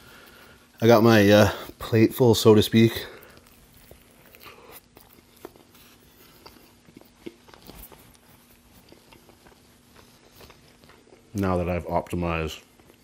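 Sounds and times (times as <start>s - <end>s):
person chewing: 3.0s - 11.6s, 12.6s - 13.0s.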